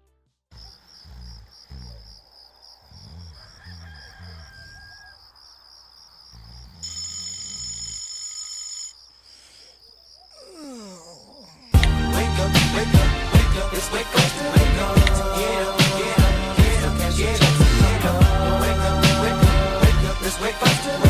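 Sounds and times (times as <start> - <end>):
smartphone alarm tone: 6.8 - 9.0.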